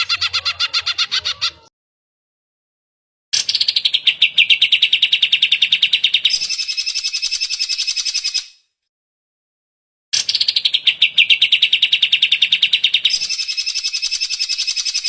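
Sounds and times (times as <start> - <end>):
bird singing fast ringing trill: 10.3 - 15.0.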